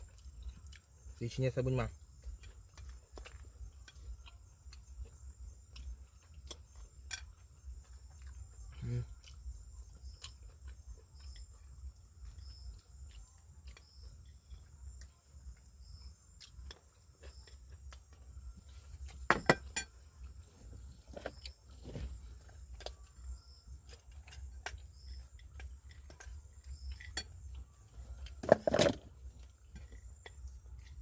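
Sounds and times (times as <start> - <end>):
insects droning and chirping: 0.0 - 31.0
cutlery clinking on a plate: 19.3 - 20.0, 28.4 - 29.0.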